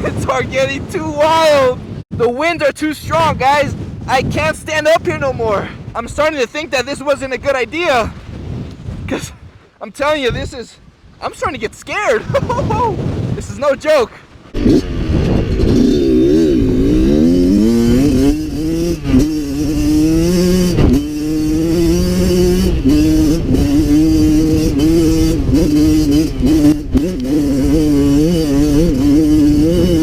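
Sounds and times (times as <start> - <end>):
dirt bike engine revving: 14.5 - 30.0.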